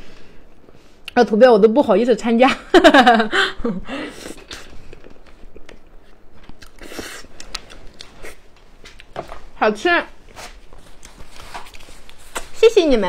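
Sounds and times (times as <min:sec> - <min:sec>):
person chewing and biting food: 0:04.2 - 0:09.2.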